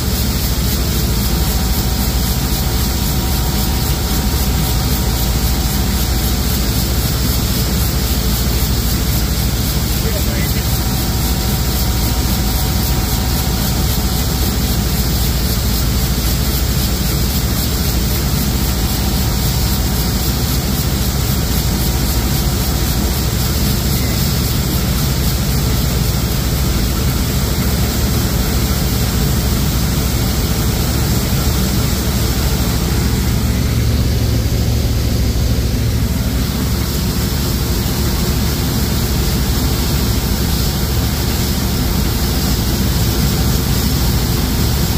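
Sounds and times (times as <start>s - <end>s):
combine harvester running: 0.0s - 44.9s
deeper hum: 30.3s - 39.7s.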